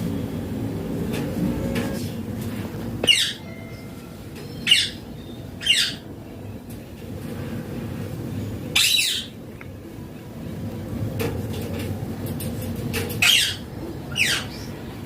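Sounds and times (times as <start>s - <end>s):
parakeet squawking: 3.0s - 3.5s, 4.6s - 6.1s, 8.7s - 9.4s, 13.2s - 14.8s.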